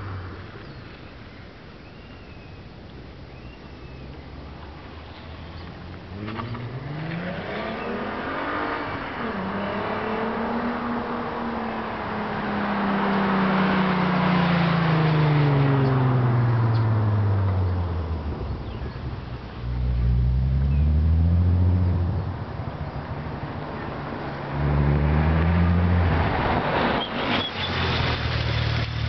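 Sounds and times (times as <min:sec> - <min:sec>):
car engine revving: 0:04.5 - 0:29.0.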